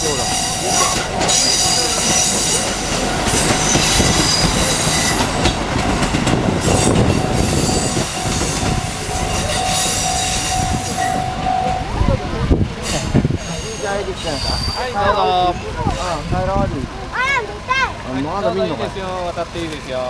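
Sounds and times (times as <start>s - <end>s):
train wheels on rails: 0.0s - 20.0s
high-pitched wheel squeal: 6.6s - 11.8s.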